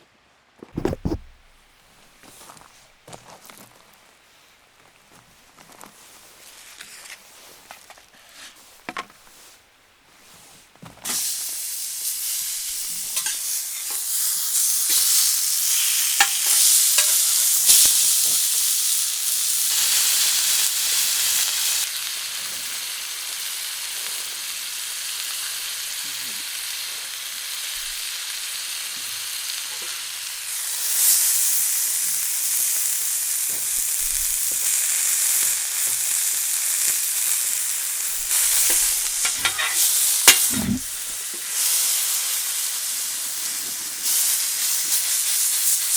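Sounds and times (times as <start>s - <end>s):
fat spitting pops: 0.6s - 1.6s, 38.5s - 40.9s
beef sizzling in a hot pan: 11.0s - 45.9s.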